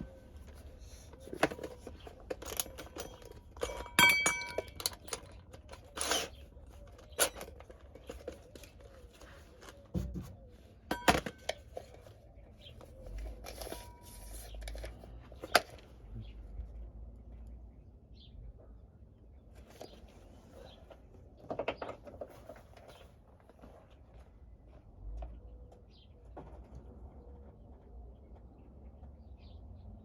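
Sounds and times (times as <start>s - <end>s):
tools and hardware clinking: 0.0s - 8.9s, 10.9s - 12.0s, 13.2s - 15.8s
short ringing clink: 3.6s - 5.0s.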